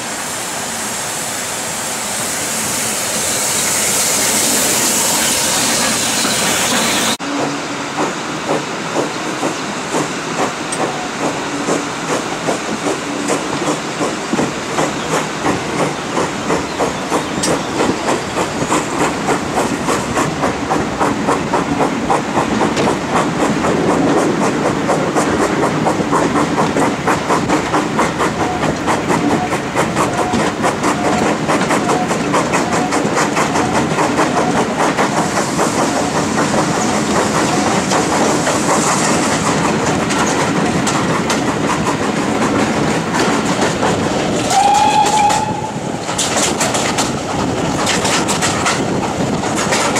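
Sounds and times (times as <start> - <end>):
steam hiss: 0.0 - 49.9
steam locomotive exhaust beats: 0.1 - 49.9
wheels clicking over rail joints: 8.0 - 49.9
steam whistle: 44.5 - 46.0.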